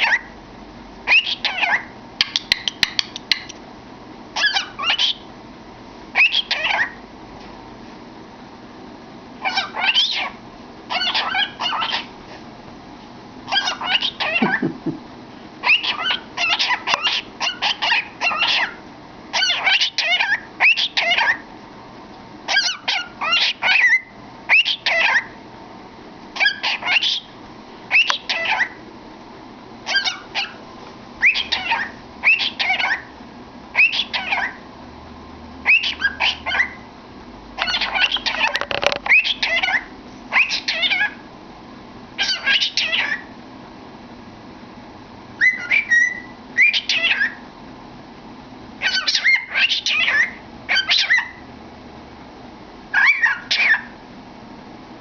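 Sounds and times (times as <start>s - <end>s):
cockatiel warbling whistles: 4.4s - 5.2s, 6.2s - 7.0s, 9.4s - 12.1s, 15.6s - 18.8s, 26.4s - 27.3s, 27.9s - 28.8s, 29.9s - 30.6s, 31.2s - 33.1s, 33.8s - 34.6s, 35.6s - 36.8s, 37.6s - 41.2s, 45.4s - 47.4s, 52.9s - 53.9s.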